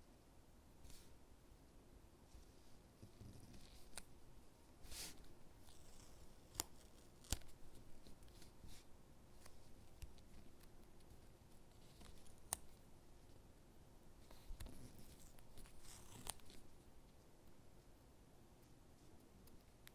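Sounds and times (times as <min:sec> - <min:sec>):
sticker peeling rustle: 0:04.8 - 0:12.8, 0:14.2 - 0:16.7.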